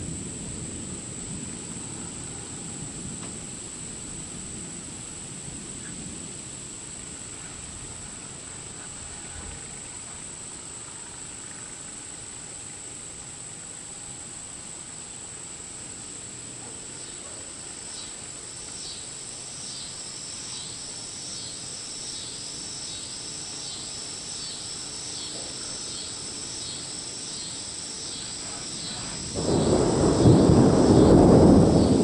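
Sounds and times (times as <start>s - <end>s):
loud thunder rumble: 0.0s - 9.8s, 28.4s - 32.0s
insects buzzing: 0.0s - 32.0s
rhythmic insect chirp: 0.0s - 32.0s.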